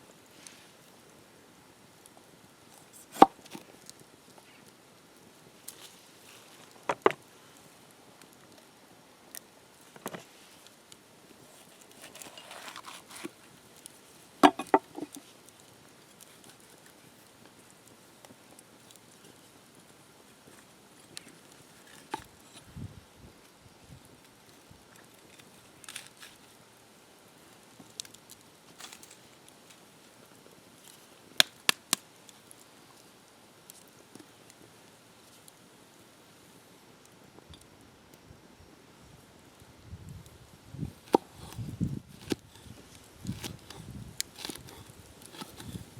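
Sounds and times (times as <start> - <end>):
soft rustle: 0.0 - 1.2, 2.0 - 31.3, 39.0 - 45.9.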